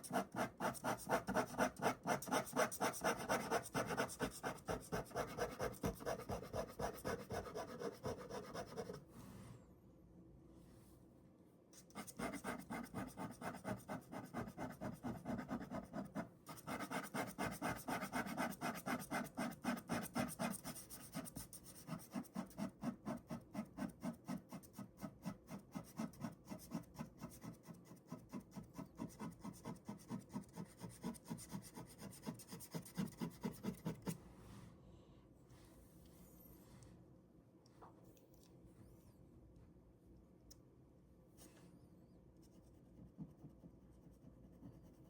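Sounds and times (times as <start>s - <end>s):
ballpoint pen shading on paper: 0.0s - 9.0s, 11.9s - 34.2s.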